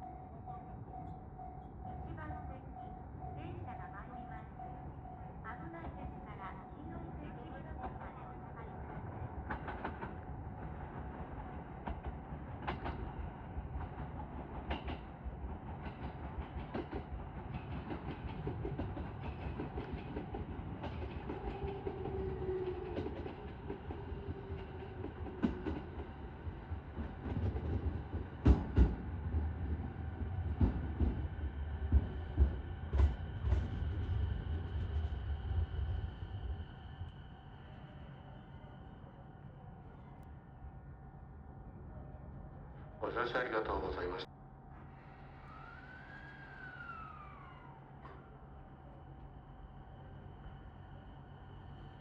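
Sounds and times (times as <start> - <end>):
train wheels clunking: 9.4 - 26.2, 26.9 - 29.2, 30.2 - 35.1.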